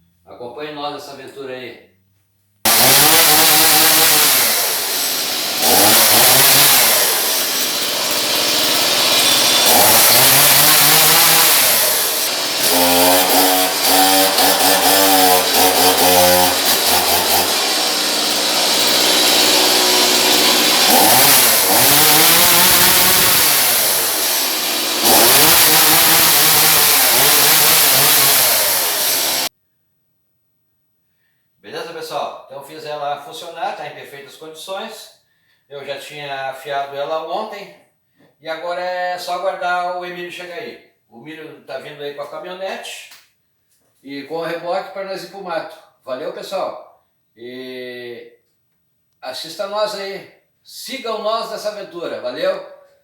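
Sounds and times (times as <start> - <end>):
chainsaw engine revving: 2.7 - 29.5.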